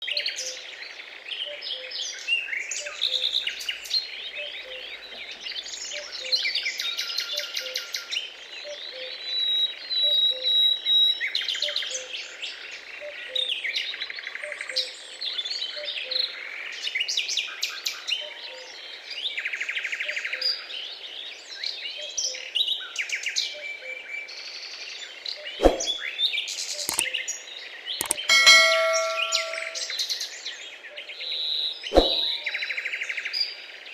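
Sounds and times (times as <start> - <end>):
sharp knocks: 28.0 - 29.9.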